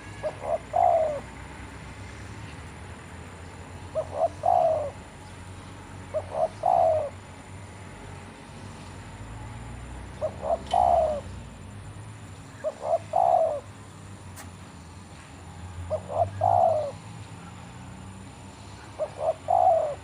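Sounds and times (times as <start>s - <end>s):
dove cooing: 0.0s - 1.4s, 3.9s - 5.2s, 6.0s - 7.3s, 10.1s - 11.5s, 12.5s - 13.8s, 15.8s - 17.6s, 18.7s - 20.0s.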